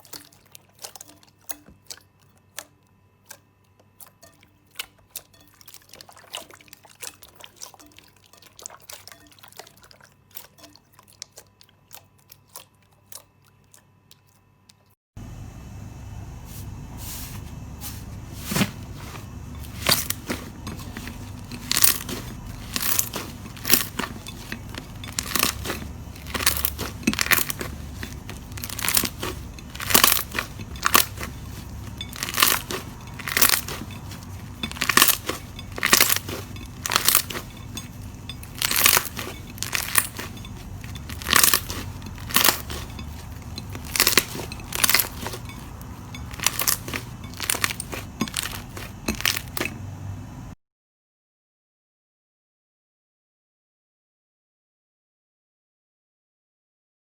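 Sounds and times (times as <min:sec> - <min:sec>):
crunchy slime squeezed by hand: 0:17.6 - 0:49.9.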